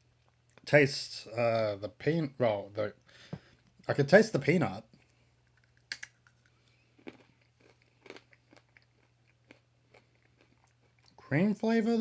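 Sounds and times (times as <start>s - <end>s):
peanuts being chewed: 5.0s - 11.3s.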